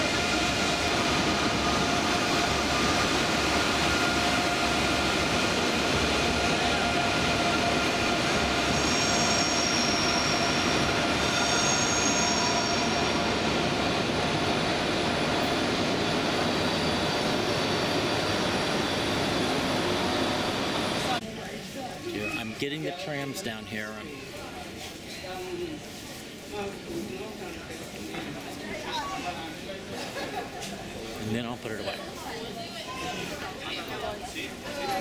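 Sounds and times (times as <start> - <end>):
train electric whine: 0.0 - 21.2
short high squeals: 8.7 - 13.1.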